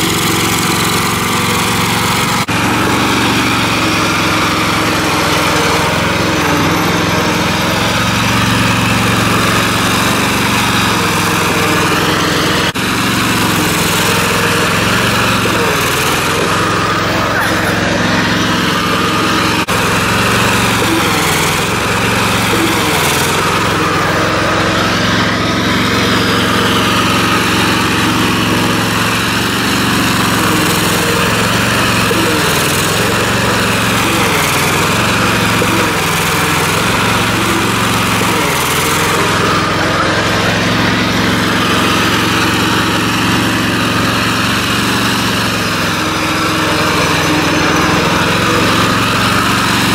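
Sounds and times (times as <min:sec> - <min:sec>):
riding lawn mower engine running: 0:00.0 - 0:49.9.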